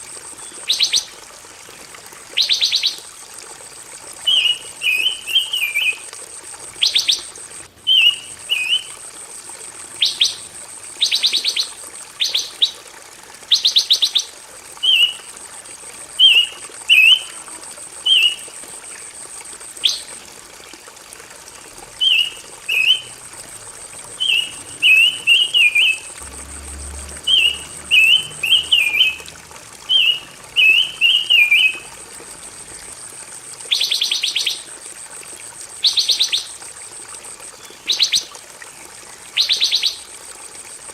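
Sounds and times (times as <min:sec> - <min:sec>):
thin high steady tone: 0:04.2 - 0:12.7, 0:21.4 - 0:38.2
songbird chirping and trilling: 0:07.9 - 0:08.9, 0:22.0 - 0:23.1, 0:24.2 - 0:26.1, 0:27.2 - 0:29.3, 0:29.9 - 0:31.9, 0:35.8 - 0:36.5.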